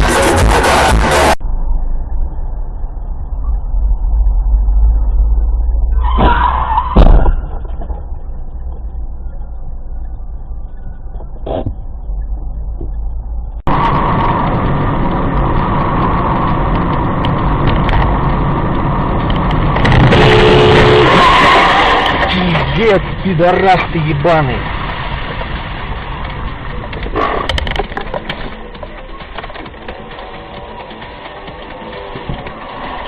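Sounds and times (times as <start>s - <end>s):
car road and engine noise: 0.0s - 33.0s
loud burst: 19.8s - 22.7s.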